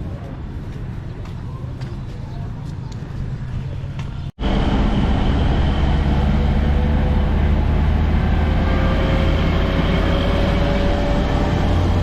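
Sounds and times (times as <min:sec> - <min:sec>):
road noise rumble: 0:00.0 - 0:12.0
vehicle engine drone: 0:03.0 - 0:12.0.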